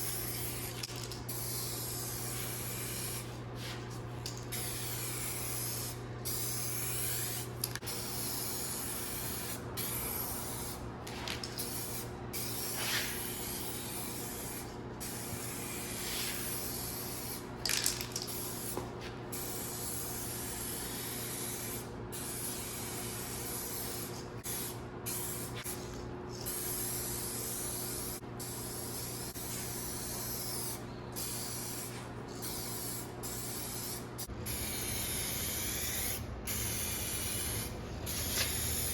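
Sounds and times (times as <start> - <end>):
spray gun hissing: 1.4 - 3.8, 4.6 - 17.4.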